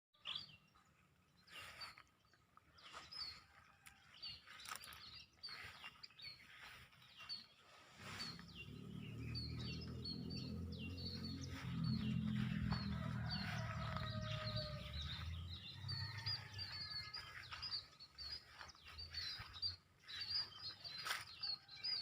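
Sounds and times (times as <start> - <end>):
bird chirping: 0.2 - 22.0.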